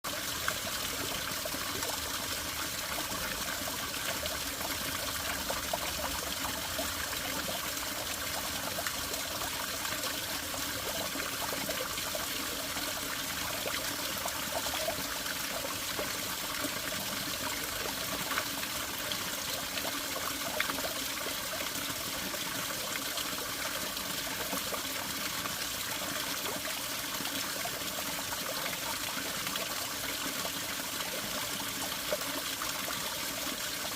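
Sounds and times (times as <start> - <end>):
spring water trickling and splashing: 0.0 - 33.9.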